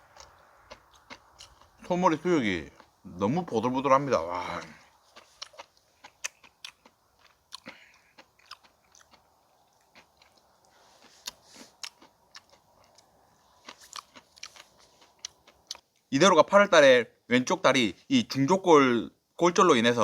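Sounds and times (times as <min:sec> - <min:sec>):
person chewing food: 0:00.0 - 0:03.0, 0:04.2 - 0:16.1.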